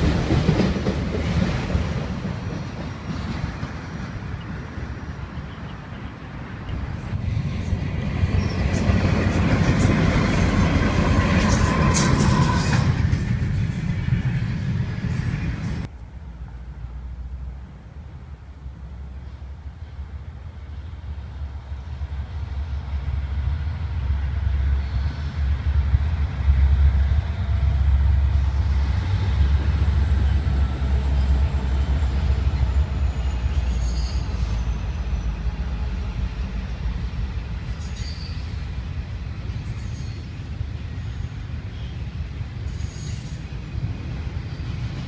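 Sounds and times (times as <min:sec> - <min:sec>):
freight cars rolling: 0:00.0 - 0:15.9
diesel locomotives passing: 0:00.0 - 0:45.0
train wheel squeals: 0:05.2 - 0:15.9, 0:30.0 - 0:35.9, 0:37.6 - 0:45.0.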